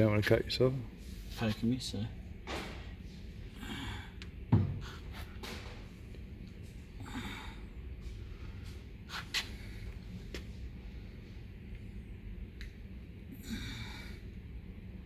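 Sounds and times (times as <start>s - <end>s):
heavy knock on workbench: 4.5s - 4.9s.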